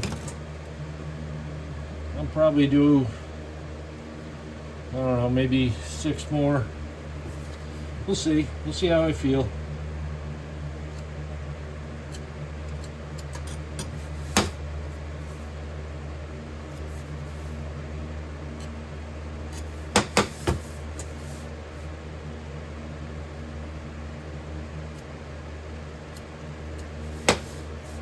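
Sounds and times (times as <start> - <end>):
furnace humming: 0.0 - 28.0
sharp knocks: 19.9 - 20.6, 27.2 - 27.6.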